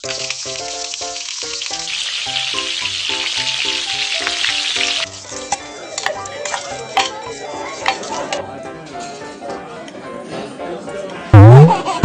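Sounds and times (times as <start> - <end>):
food sizzling in hot oil: 0.0 - 7.1.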